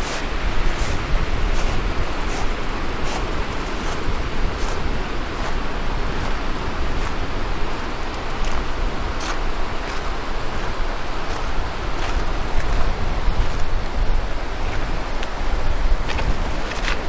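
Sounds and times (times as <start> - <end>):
footsteps: 0.0 - 13.6
wind buffeting microphone: 0.0 - 17.0.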